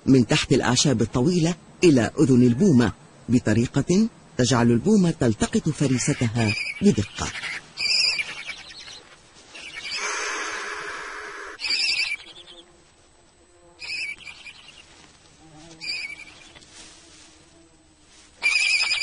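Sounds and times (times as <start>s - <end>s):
owl chicks high calls: 5.5s - 12.7s, 13.8s - 14.9s, 15.8s - 16.6s, 18.4s - 19.0s
owl chick rasping hiss: 5.7s - 12.9s, 13.8s - 19.0s.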